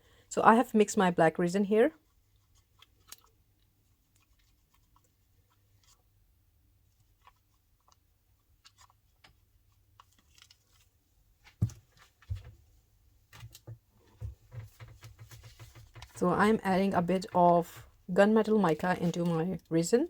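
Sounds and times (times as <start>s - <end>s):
craft containers and tools handled: 13.3s - 19.7s.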